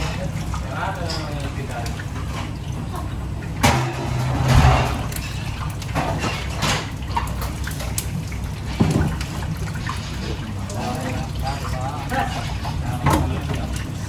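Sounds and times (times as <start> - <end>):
water splashing and pouring: 0.0 - 14.0
steady low hum: 3.6 - 5.8.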